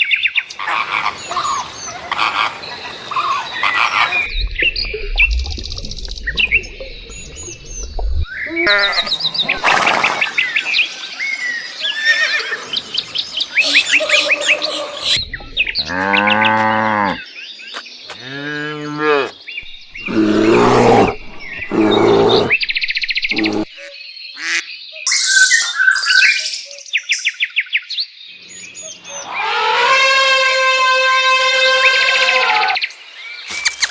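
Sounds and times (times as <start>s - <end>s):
bird chirps and trills: 18.9s - 29.7s
large animal calls: 19.9s - 23.7s, 29.2s - 32.8s.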